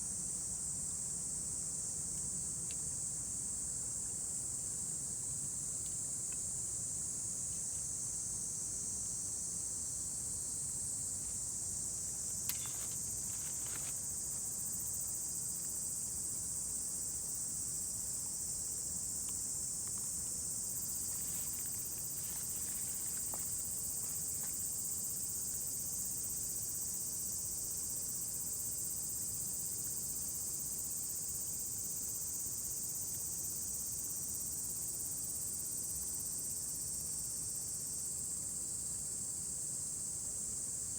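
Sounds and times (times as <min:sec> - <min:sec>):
insects chirring: 0:06.1 - 0:37.2.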